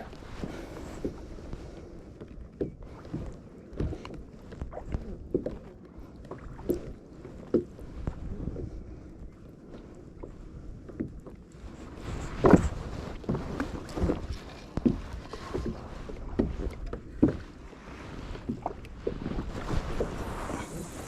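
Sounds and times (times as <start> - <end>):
wind rumble on microphone: 0.0 - 21.0.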